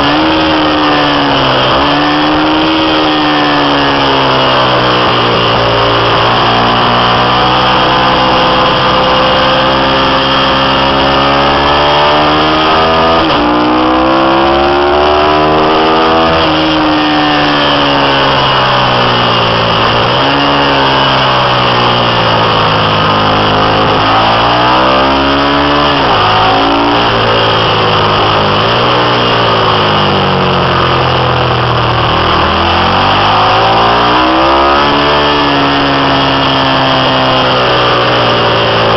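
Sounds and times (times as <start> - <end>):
racing motorcycle engine revving: 0.0 - 38.9.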